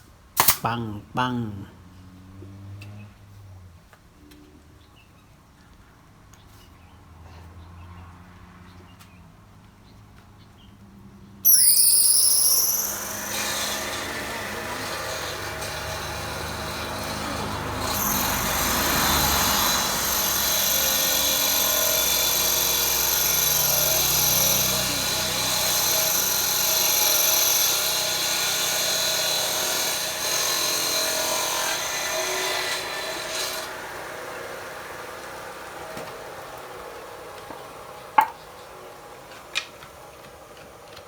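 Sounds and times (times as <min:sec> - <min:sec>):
power tool electric motor running: 0:11.5 - 0:35.8.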